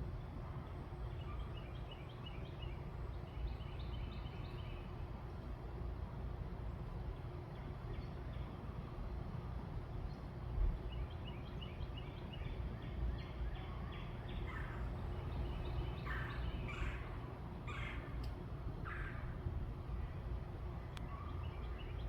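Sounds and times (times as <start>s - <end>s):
outdoor background rumble: 0.0s - 22.0s
bird calling: 14.0s - 19.4s.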